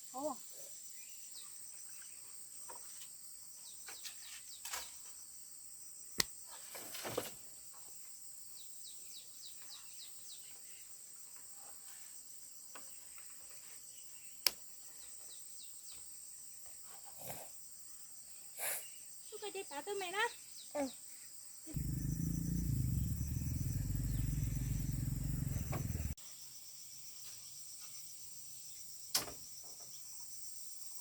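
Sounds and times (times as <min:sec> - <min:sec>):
high-pitched insect chorus: 0:21.8 - 0:26.2.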